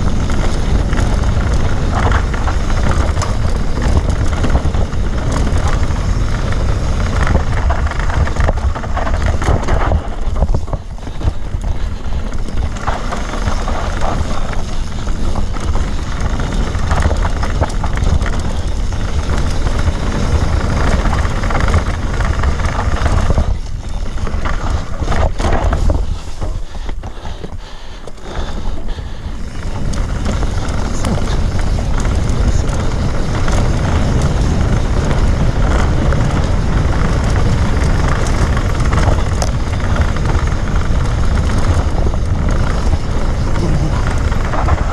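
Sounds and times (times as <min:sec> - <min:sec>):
wind buffeting microphone: 0:00.0 - 0:44.9
motorcycle engine revving: 0:29.4 - 0:44.9.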